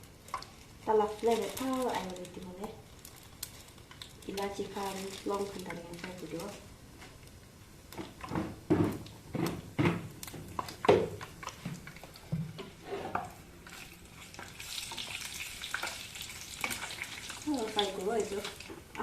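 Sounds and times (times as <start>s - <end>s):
spices sizzling in hot oil: 0.0s - 19.0s
spoon scraping a pan: 12.6s - 17.4s.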